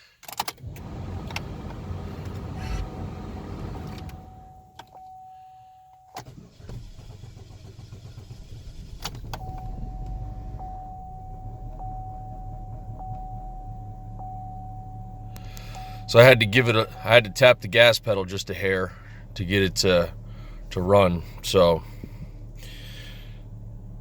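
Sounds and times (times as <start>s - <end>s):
car engine cranking and idling: 0.3s - 5.1s, 6.1s - 24.0s
steady high warning chime: 4.2s - 6.2s, 9.4s - 18.4s.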